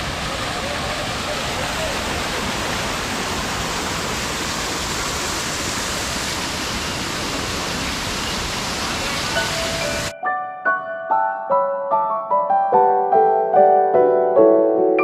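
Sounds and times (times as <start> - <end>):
flowing water rushing: 0.0 - 10.1.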